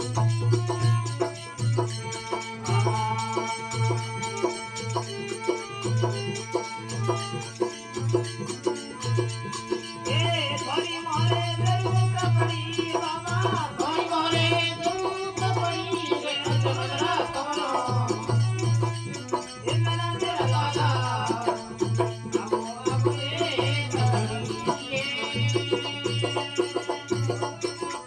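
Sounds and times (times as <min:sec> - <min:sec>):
clicking hand percussion: 0:00.0 - 0:28.0
steady drum beat: 0:00.0 - 0:28.0
person singing: 0:02.2 - 0:04.6, 0:10.0 - 0:28.0.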